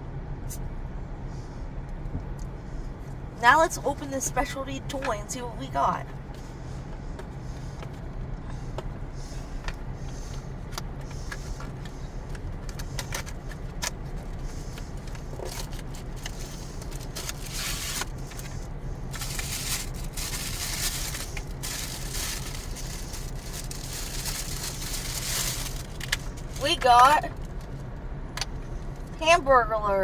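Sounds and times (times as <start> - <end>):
steady low hum: 0.0 - 30.0
packaging crinkling and rustling: 12.6 - 27.8.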